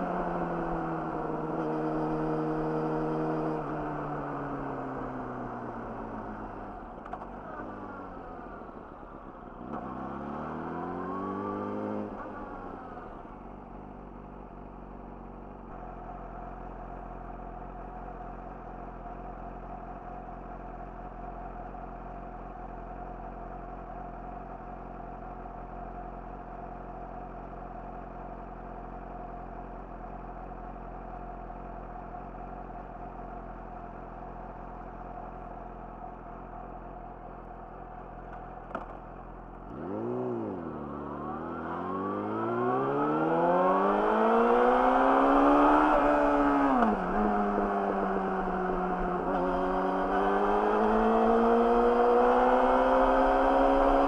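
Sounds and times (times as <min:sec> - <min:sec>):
motorcycle engine revving: 0:09.7 - 0:13.0, 0:39.6 - 0:54.0.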